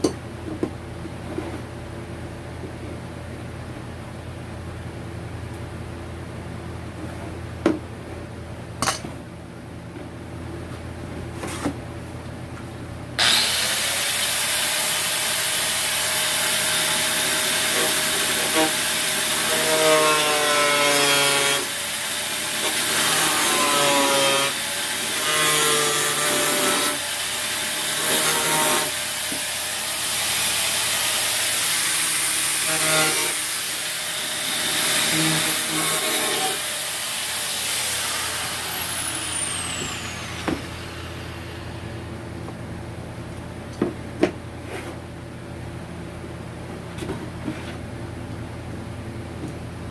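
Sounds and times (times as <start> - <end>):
power tool cutting under load: 13.2 - 42.0.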